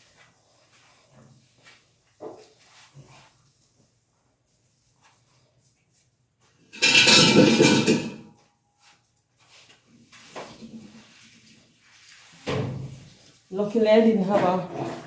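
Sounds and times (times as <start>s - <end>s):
faint knocks and rattles: 6.8s - 8.2s
metallic scraping clatter: 6.8s - 8.2s.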